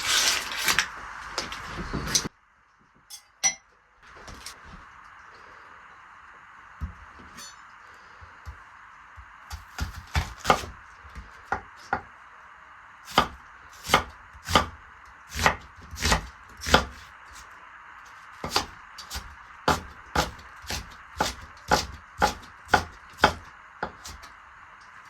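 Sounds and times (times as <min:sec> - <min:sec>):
knife chopping on cutting board: 0:09.2 - 0:12.1, 0:13.1 - 0:17.0, 0:18.4 - 0:24.3.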